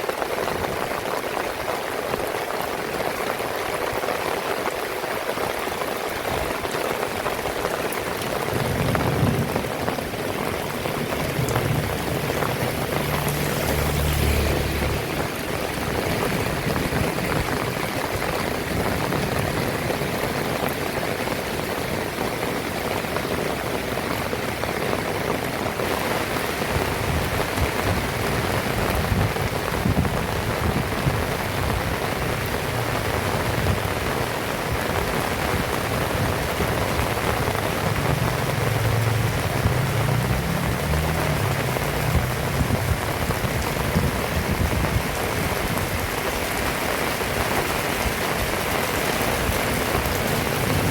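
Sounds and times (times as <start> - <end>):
heavy rain falling: 0.0 - 50.9
low rumble: 37.6 - 43.0.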